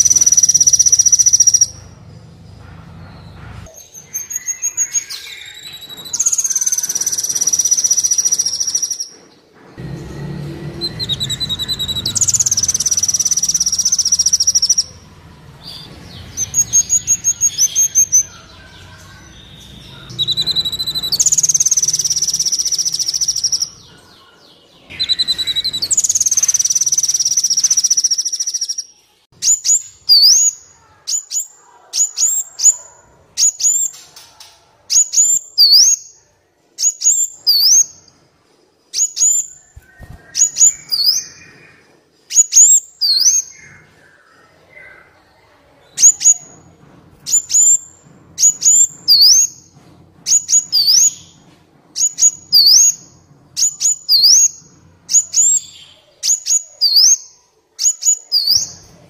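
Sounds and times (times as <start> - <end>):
songbird buzzy trills and calls: 0.0 - 1.8, 10.7 - 15.0, 15.6 - 23.8, 24.9 - 32.8.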